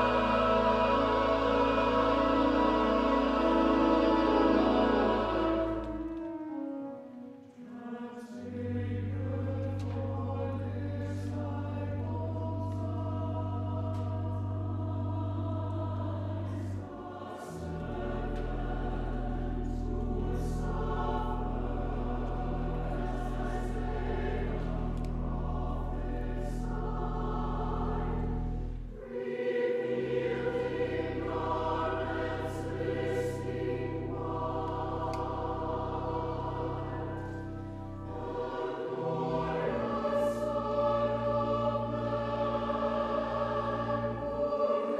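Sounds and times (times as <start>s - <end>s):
church choir singing: 0.0s - 44.9s
held low bass notes: 8.6s - 29.1s.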